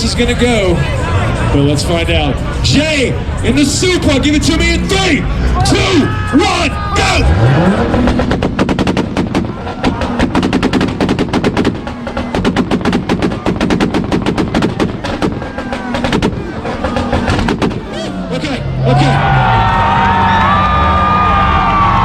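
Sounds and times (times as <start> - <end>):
exhaust popping and banging: 3.6 - 19.0.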